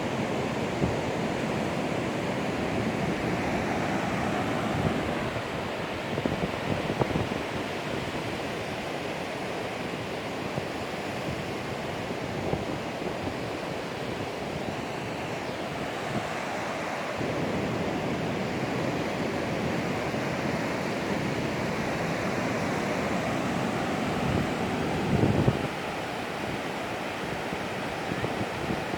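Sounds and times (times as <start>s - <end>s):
waves breaking: 0.0s - 9.8s, 15.6s - 28.9s
wind buffeting microphone: 0.7s - 9.0s, 10.4s - 28.9s.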